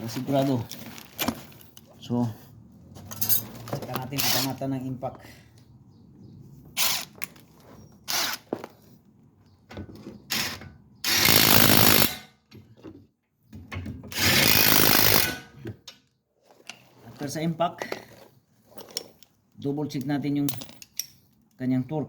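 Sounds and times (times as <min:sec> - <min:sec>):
impact wrench running: 0:10.3 - 0:12.2, 0:14.2 - 0:15.4.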